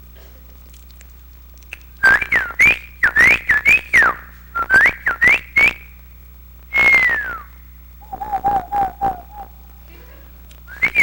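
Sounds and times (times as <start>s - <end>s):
person whistling birdsong: 2.0s - 5.9s, 6.7s - 9.8s, 10.7s - 11.0s.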